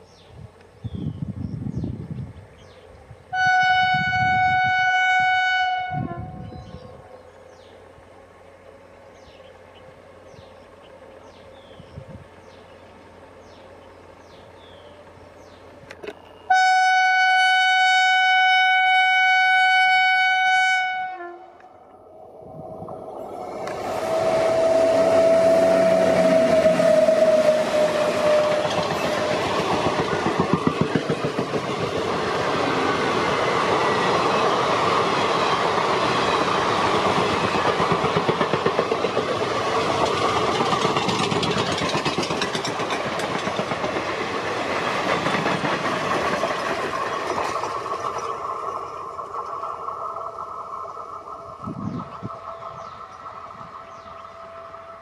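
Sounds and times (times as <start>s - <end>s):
train passing at speed: 0.0s - 55.0s
locomotive air horn blast: 3.3s - 6.5s, 16.5s - 21.6s, 23.7s - 28.6s
wheels clacking over rail joints: 25.3s - 54.1s.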